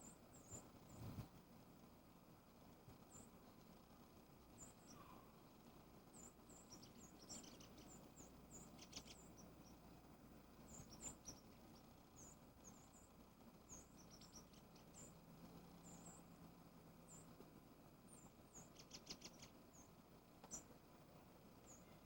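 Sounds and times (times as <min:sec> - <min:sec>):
high-pitched bird chirps: 0:06.6 - 0:09.5, 0:18.6 - 0:19.9.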